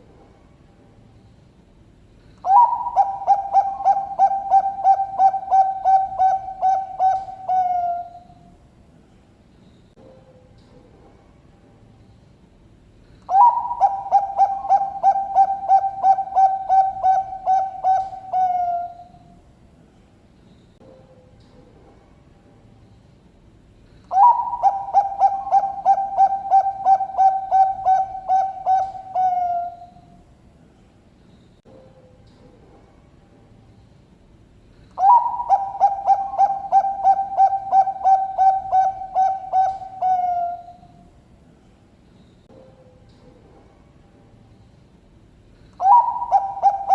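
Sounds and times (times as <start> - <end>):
dove cooing: 2.4 - 8.4, 13.3 - 19.2, 24.1 - 30.0, 35.0 - 40.9, 45.8 - 46.9.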